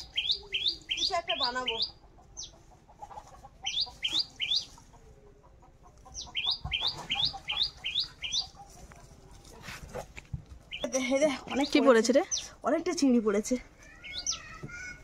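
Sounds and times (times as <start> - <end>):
bird chirping upward sweeps: 3.6 - 4.8, 13.9 - 14.6.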